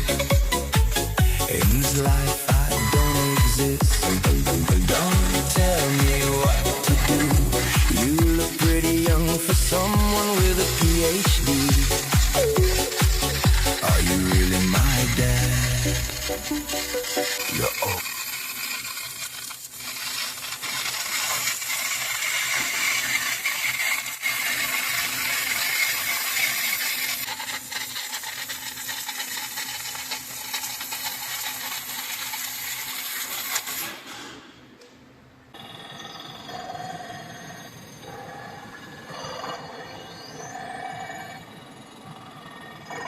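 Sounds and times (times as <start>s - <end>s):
cnc machine cutting: 0.0s - 32.9s
quieter machine sound: 0.0s - 33.6s, 34.5s - 43.0s.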